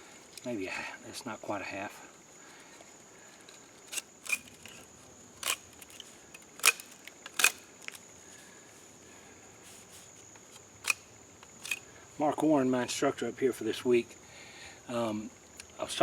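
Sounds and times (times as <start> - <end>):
wooden sticks clicking together: 3.9 - 4.8, 5.4 - 8.0.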